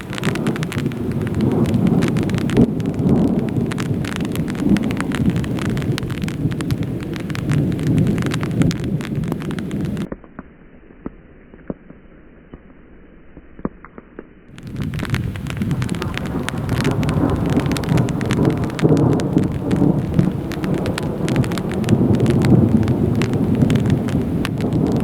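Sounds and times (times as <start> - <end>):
heavy rain downpour: 0.0 - 10.1, 14.5 - 25.0
raindrop impacts: 0.0 - 11.9, 14.5 - 25.0.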